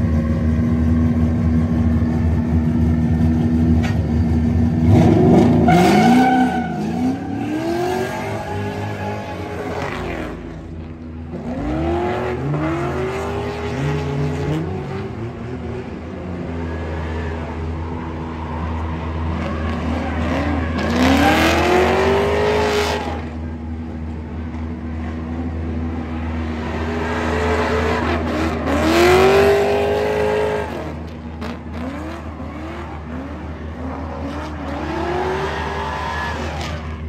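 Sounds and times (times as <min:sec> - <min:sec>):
car engine revving hard: 0:19.3 - 0:23.2.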